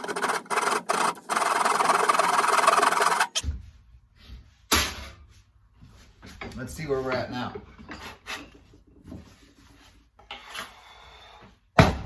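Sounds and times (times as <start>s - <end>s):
hand saw cutting wood: 0.0s - 3.4s.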